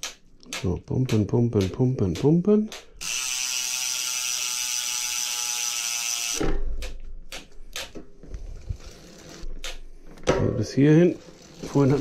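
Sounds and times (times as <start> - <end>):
bicycle freehub ratchet buzzing: 3.0 - 6.4, 11.1 - 12.0.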